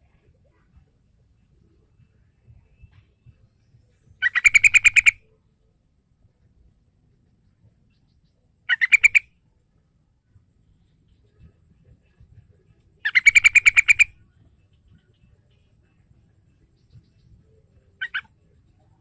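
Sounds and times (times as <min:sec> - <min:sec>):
bulbul calling repeated notes: 0:04.2 - 0:05.2, 0:08.6 - 0:09.4, 0:13.0 - 0:16.0, 0:16.8 - 0:18.9.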